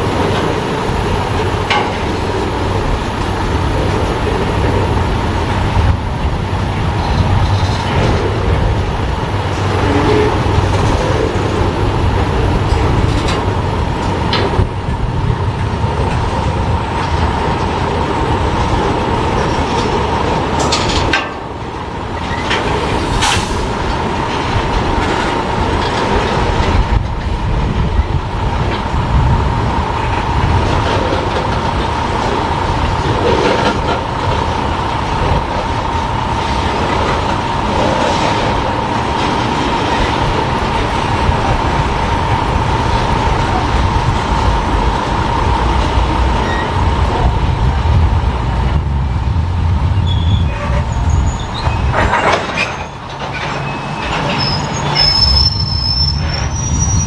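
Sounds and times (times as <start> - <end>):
train wheels clacking over joints: 15.5 - 28.9, 30.0 - 41.6, 50.6 - 57.0.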